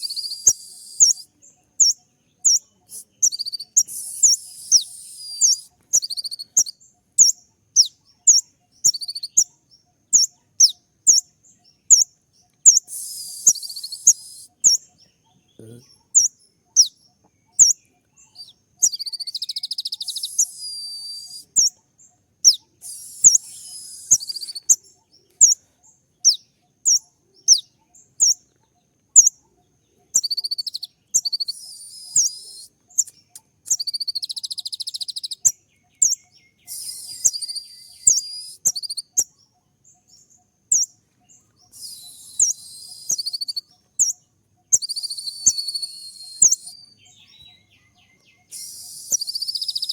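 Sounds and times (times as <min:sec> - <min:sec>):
fast bird twittering: 0:00.0 - 0:11.3, 0:12.7 - 0:15.0, 0:15.6 - 0:21.8, 0:22.4 - 0:25.6, 0:30.0 - 0:39.3, 0:41.6 - 0:49.9.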